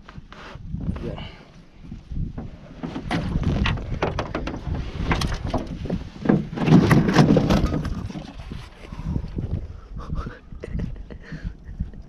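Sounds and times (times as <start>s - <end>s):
knocks and thumps on boat hull: 2.2s - 8.2s.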